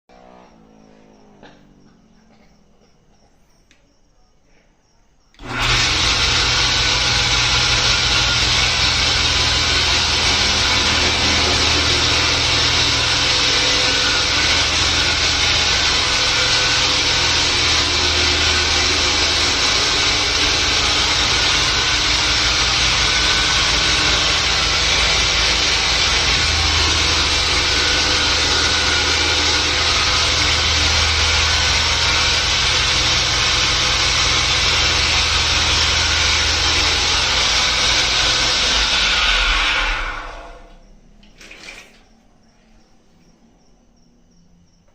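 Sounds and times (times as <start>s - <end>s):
saw blade sawing: 5.4s - 40.6s
saw motor hum: 5.4s - 40.9s.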